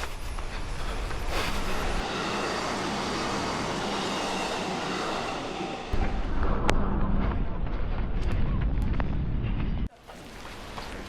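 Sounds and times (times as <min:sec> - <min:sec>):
train passing with rushing noise: 0:00.0 - 0:08.0
low rumble: 0:05.8 - 0:09.9.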